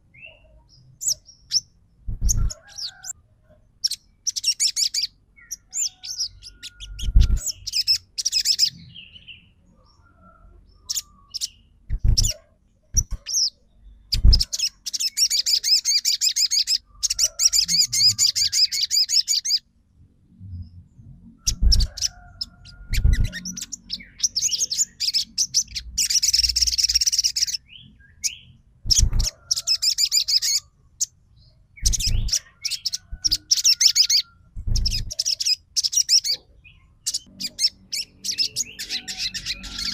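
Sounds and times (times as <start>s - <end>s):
bird chattering trill: 1.0s - 3.1s, 3.8s - 8.8s, 10.9s - 13.5s, 14.1s - 19.6s, 21.5s - 27.6s, 28.3s - 30.7s, 31.8s - 36.4s
dull low thumps: 11.9s - 12.3s, 34.6s - 35.1s.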